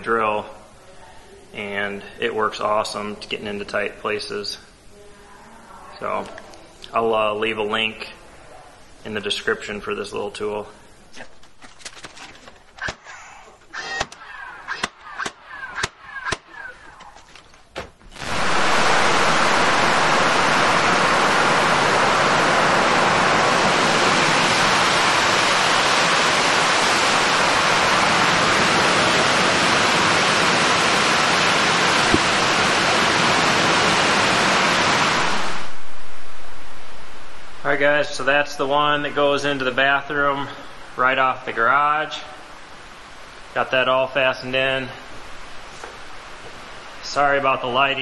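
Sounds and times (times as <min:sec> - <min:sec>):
heavy rain pouring: 0:11.4 - 0:48.0.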